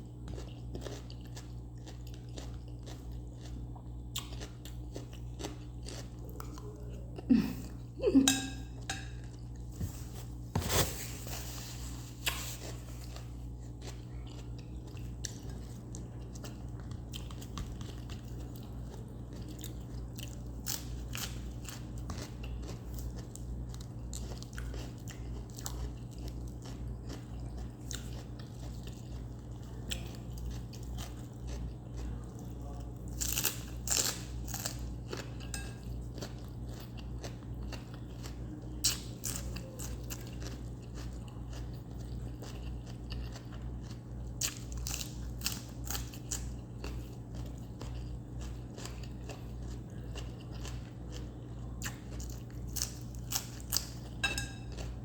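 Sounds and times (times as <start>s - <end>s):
crunching raw vegetables: 8.9s - 55.0s.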